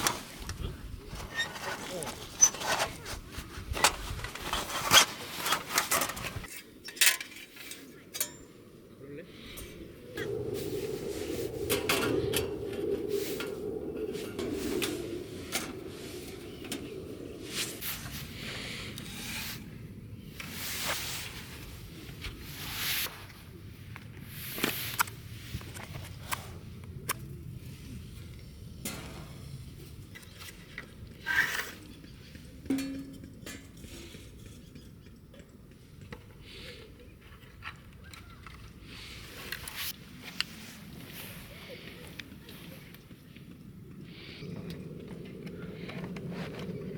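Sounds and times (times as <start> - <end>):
steady low rushing noise: 8.7 - 22.0
ringing metallic clank: 32.7 - 33.7.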